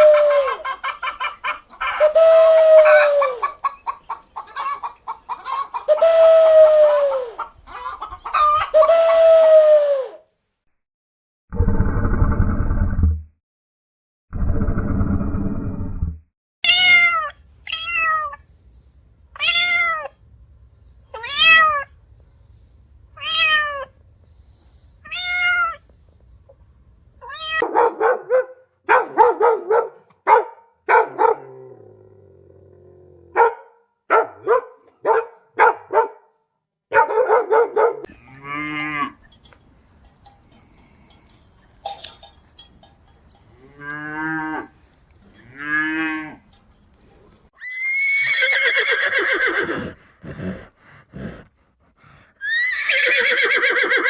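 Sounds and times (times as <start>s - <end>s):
cat meowing: 16.6s - 18.4s, 19.4s - 20.2s, 21.2s - 21.9s, 23.2s - 24.0s, 25.0s - 25.8s, 27.2s - 27.6s.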